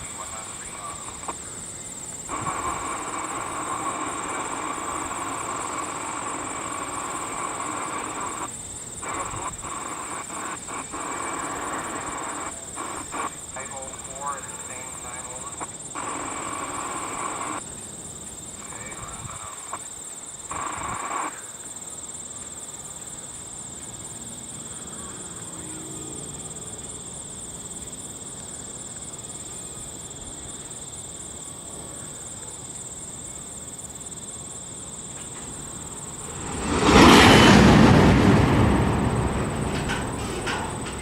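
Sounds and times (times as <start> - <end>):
insect trilling: 0.0 - 17.6, 18.4 - 21.8
train air brakes releasing: 35.2 - 41.0.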